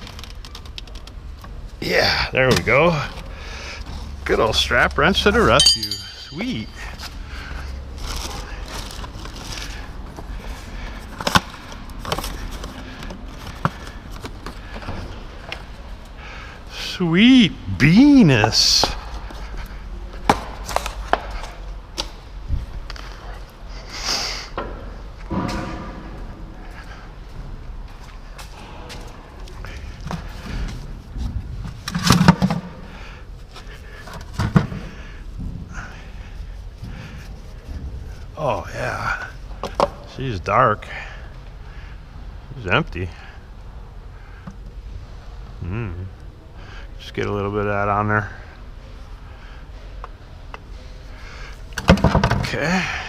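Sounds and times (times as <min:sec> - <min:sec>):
tools knocking and clanking: 0:05.5 - 0:06.9.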